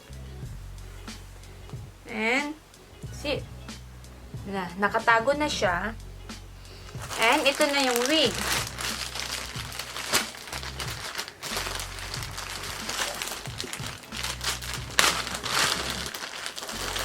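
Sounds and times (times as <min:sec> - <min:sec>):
packaging crinkling and rustling: 0:07.0 - 0:17.0.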